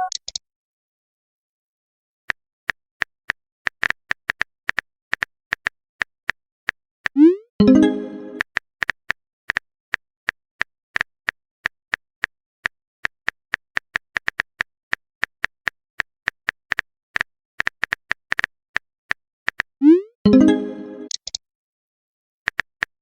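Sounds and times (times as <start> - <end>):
phone keyboard typing clicks: 0.0 - 0.4.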